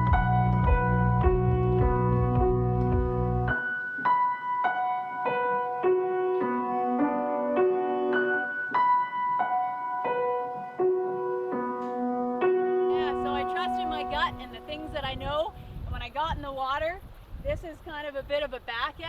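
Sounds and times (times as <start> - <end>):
low bass layer: 0.0 - 3.6
slow piano melody: 0.0 - 15.6.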